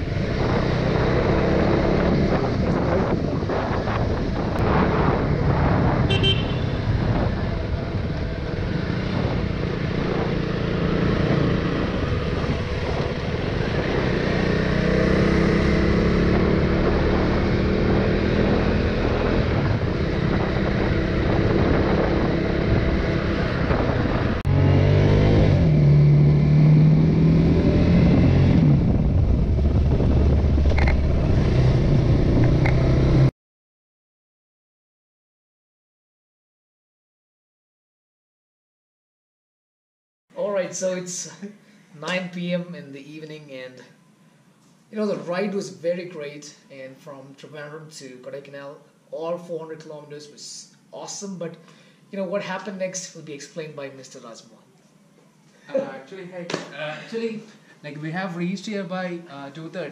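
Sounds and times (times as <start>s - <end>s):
motorcycle engine revving: 0.0s - 33.3s
wind and road noise: 0.0s - 33.3s.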